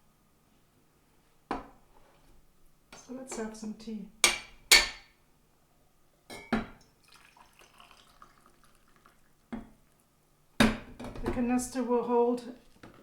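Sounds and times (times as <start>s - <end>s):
faint rustling and scraping: 0.4s - 2.4s.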